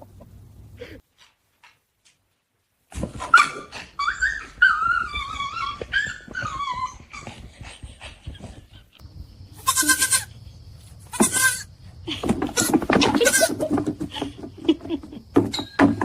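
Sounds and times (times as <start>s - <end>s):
dog whining: 3.2s - 7.6s
dog crying: 3.2s - 7.7s.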